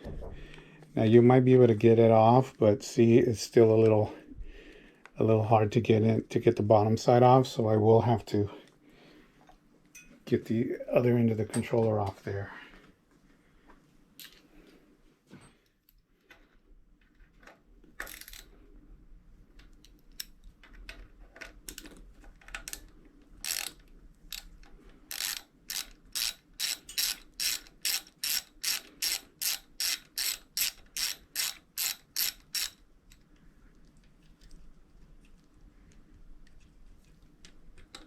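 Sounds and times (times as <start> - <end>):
hand ratchet clicking: 22.6 - 24.5, 25.1 - 32.8.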